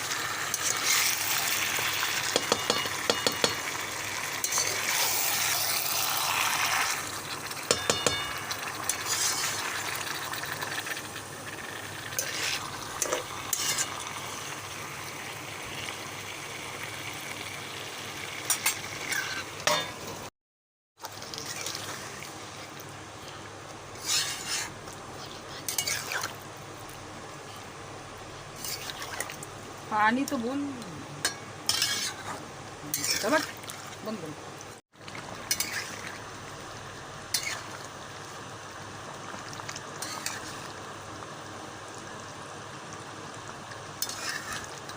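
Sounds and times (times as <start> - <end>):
food sizzling in a pan: 0.0 - 20.3, 21.0 - 44.9
spoon clinking against pan: 2.4 - 3.6, 7.7 - 8.6.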